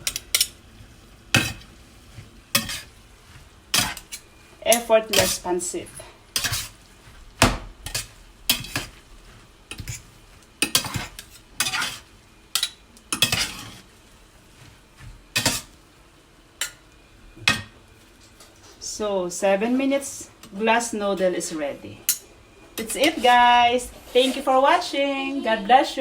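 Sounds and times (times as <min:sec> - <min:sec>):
metal utensil scraping a skillet: 0:01.3 - 0:07.2, 0:07.8 - 0:13.9, 0:15.4 - 0:15.8, 0:22.8 - 0:23.4, 0:24.0 - 0:24.7.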